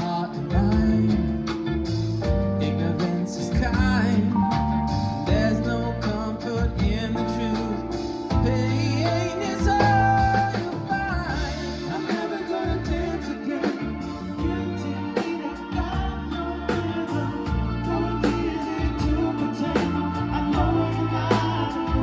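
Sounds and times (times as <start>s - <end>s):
bass: 0.0s - 22.0s
live band playing: 0.0s - 22.0s
person singing: 0.0s - 22.0s
drum beat: 15.2s - 22.0s.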